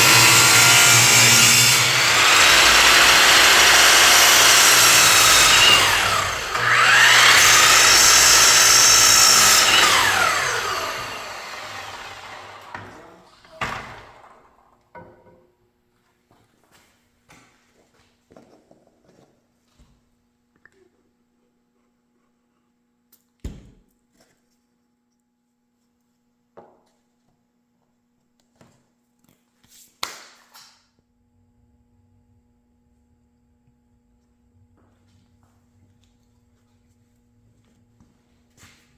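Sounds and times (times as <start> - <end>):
power tool motor whining: 0.0 - 13.2.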